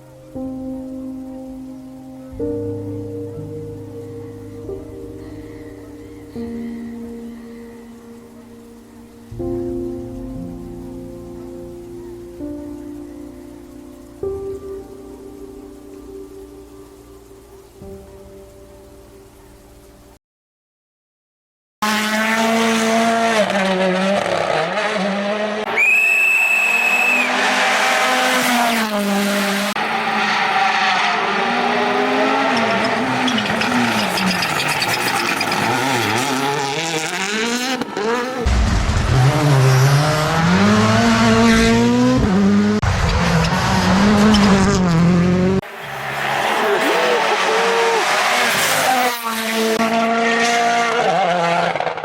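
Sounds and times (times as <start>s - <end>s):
rally car engines revving: 21.8s - 52.0s
high whistle: 25.7s - 27.5s.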